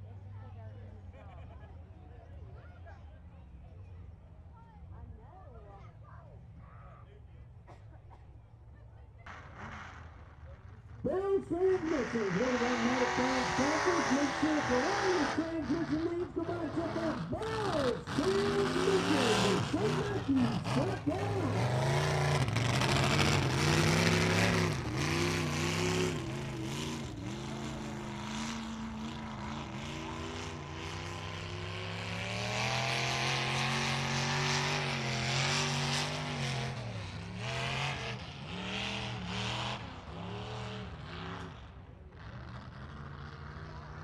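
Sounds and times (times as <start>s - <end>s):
truck engine revving: 9.3s - 44.0s.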